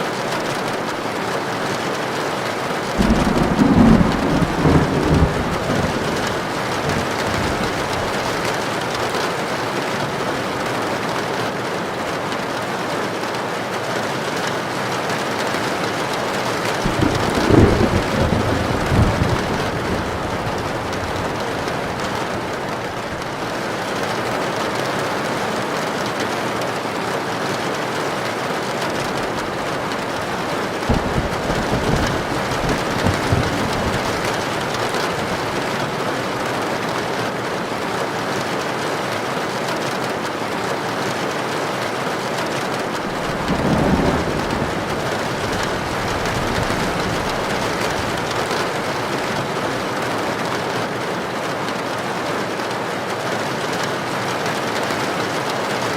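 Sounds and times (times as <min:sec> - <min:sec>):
rain on a tin roof: 0:00.0 - 0:55.9
thunder: 0:02.8 - 0:08.9, 0:16.3 - 0:23.6, 0:29.0 - 0:35.8, 0:43.0 - 0:49.7.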